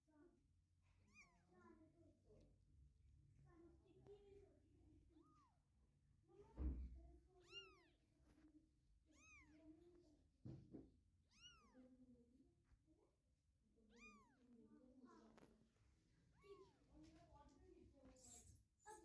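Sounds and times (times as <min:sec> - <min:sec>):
thump: 0:06.5 - 0:07.0, 0:10.4 - 0:10.9
kittens mewing: 0:07.4 - 0:08.0, 0:09.1 - 0:09.6, 0:11.3 - 0:11.8, 0:13.9 - 0:14.4.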